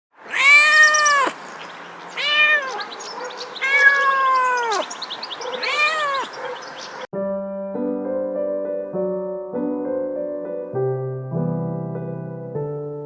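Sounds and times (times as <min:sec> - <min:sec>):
cat meowing: 0:00.3 - 0:01.5, 0:02.1 - 0:06.4.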